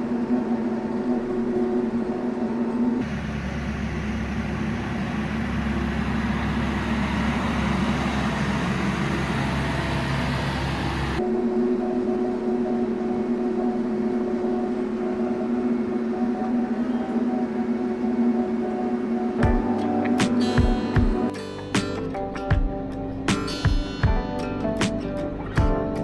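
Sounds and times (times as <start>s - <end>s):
tractor diesel engine running: 3.0s - 11.2s.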